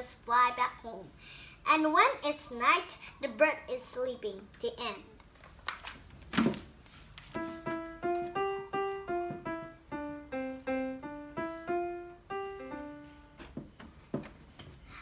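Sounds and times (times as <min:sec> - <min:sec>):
simple keyboard melody: 0:07.4 - 0:13.4.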